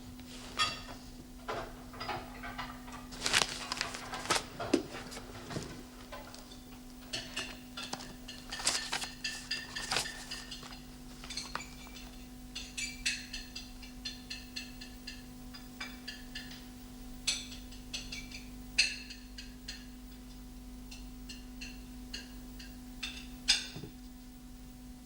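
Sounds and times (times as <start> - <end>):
steady low hum: 0.0 - 14.0
dishes and cutlery clinking: 0.3 - 14.9.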